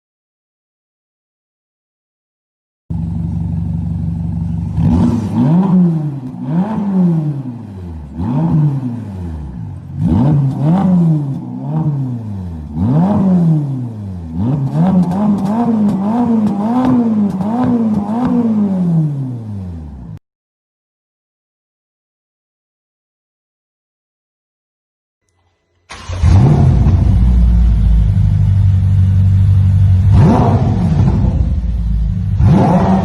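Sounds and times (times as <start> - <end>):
car engine revving: 3.0 - 20.2, 25.9 - 33.0.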